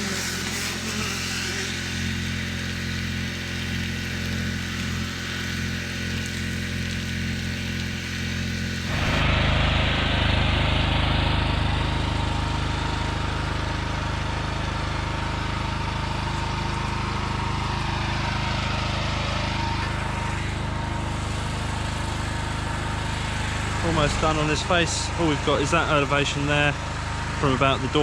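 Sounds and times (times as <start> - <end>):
high-pressure water jet hiss: 0.0 - 9.3, 17.8 - 28.0
pressure washer engine running: 0.0 - 28.0.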